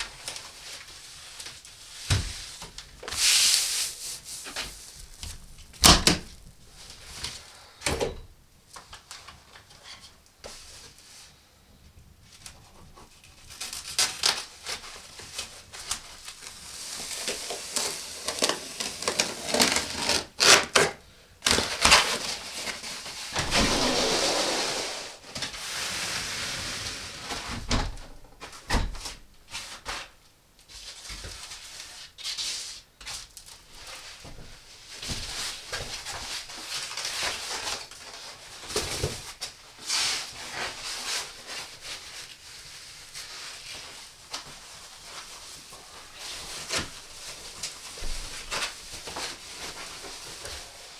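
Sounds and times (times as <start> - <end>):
rustling and scraping: 21.5 - 30.0
hissing scrape: 23.4 - 27.0.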